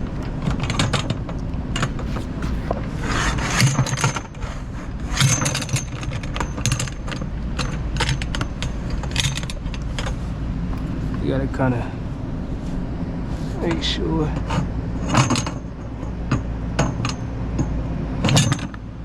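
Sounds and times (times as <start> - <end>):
steady low rumble: 1.6 - 3.4.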